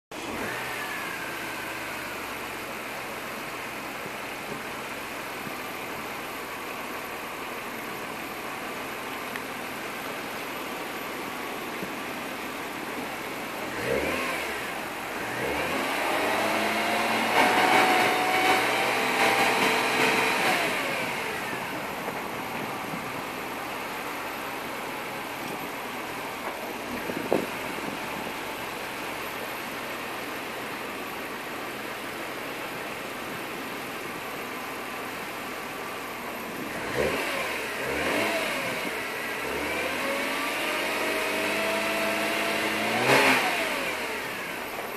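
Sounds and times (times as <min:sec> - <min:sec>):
car engine idling roughly: 0:00.2 - 0:16.4, 0:17.6 - 0:36.8.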